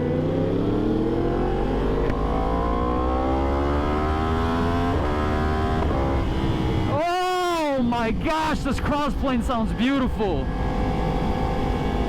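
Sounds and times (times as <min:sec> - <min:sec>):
motorcycle accelerating hard: 0:00.0 - 0:07.0, 0:10.4 - 0:12.0.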